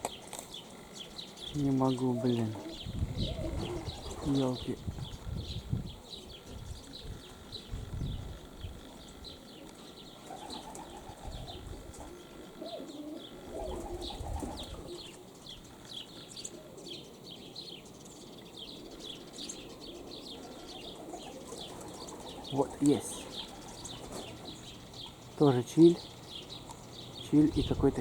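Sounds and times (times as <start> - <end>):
birds chirping: 0.0 - 28.0
pigeons cooing: 0.0 - 28.0
wind buffeting microphone: 1.4 - 9.4, 10.9 - 12.1, 13.5 - 15.1, 26.0 - 28.0.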